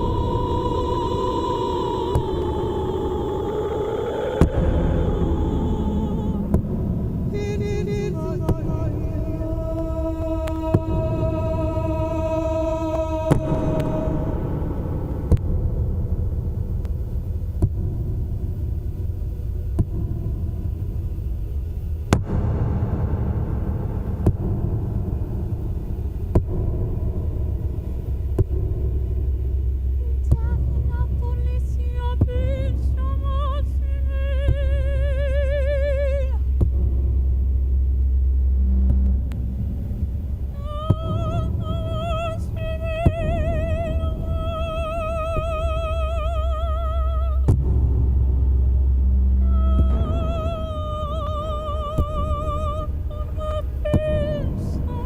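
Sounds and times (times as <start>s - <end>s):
woman singing high note with vibrato: 0.0s - 15.1s, 30.0s - 36.5s, 40.6s - 47.5s, 49.4s - 55.0s
throbbing electronic drone: 0.0s - 55.0s.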